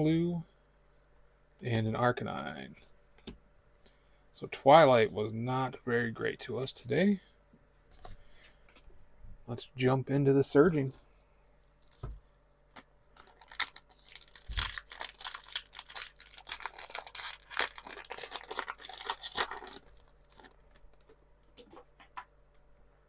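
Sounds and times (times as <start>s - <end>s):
foil wrapper tearing and crinkling: 13.2s - 21.1s.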